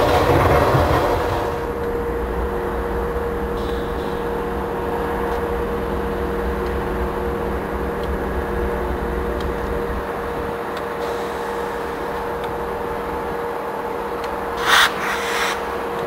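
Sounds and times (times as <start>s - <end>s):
low rumble: 0.0s - 10.5s
freight train rumble and hiss: 0.0s - 16.0s
steady hum: 0.0s - 16.0s.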